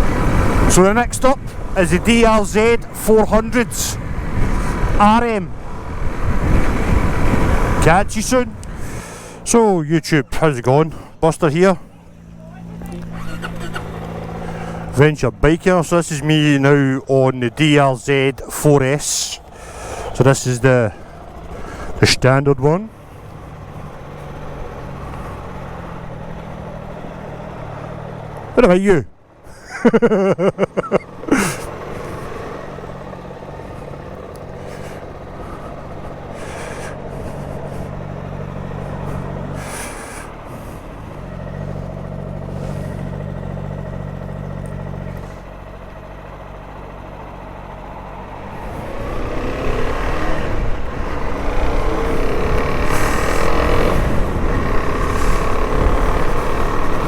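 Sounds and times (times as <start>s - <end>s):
motorcycle engine idling: 0.0s - 57.0s
rushing air: 48.4s - 57.0s.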